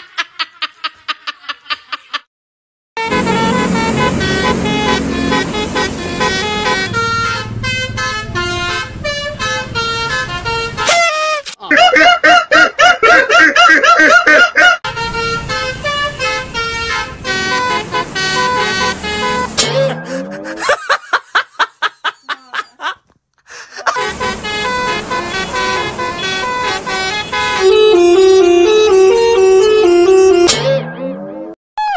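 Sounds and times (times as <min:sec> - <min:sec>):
multi-tone bus horn tune: 0:03.0 - 0:11.6, 0:14.8 - 0:20.8, 0:23.9 - 0:30.9.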